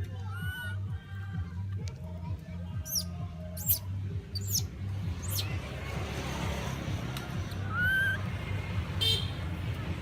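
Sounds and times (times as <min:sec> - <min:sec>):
high-pitched squeaky animal chirps: 0:00.2 - 0:00.9, 0:02.8 - 0:05.5, 0:07.7 - 0:08.2.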